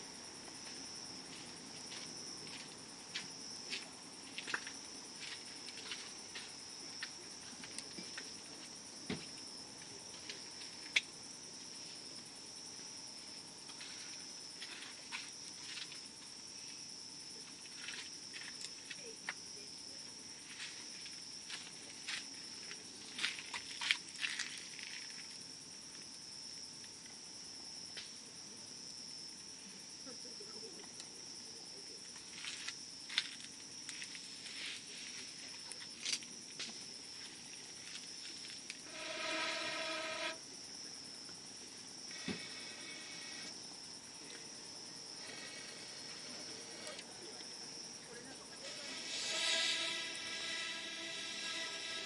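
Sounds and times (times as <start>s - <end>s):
high-pitched insect trill: 0.0s - 52.0s
steady pitched tone: 38.8s - 40.4s, 48.6s - 52.0s.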